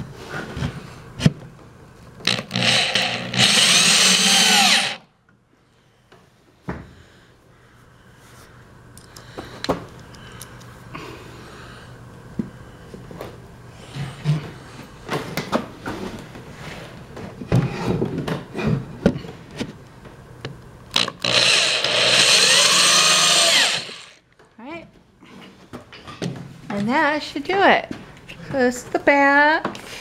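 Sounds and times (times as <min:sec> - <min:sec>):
power drill driving a screw: 0:02.3 - 0:05.0, 0:21.0 - 0:24.2.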